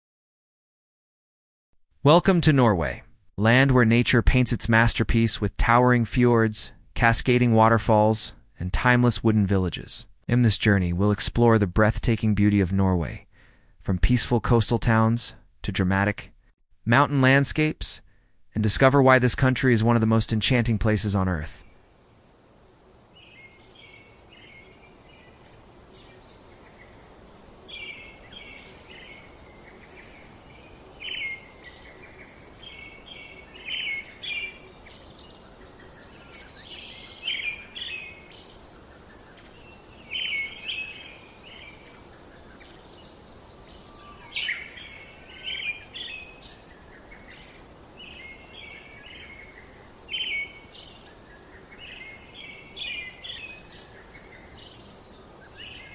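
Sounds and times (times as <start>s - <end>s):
faint steady hiss: 16.8s - 55.9s
songbirds chirping: 18.7s - 55.9s.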